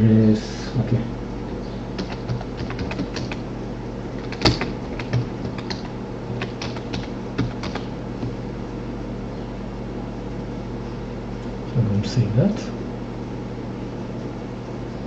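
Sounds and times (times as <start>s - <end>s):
steady low hum: 0.0s - 15.0s
typing on computer keyboard: 2.0s - 3.4s, 4.2s - 8.4s.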